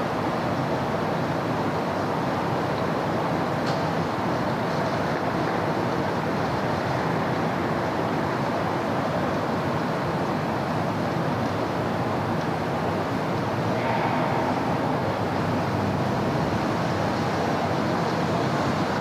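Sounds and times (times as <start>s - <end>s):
city road traffic: 10.9s - 19.0s.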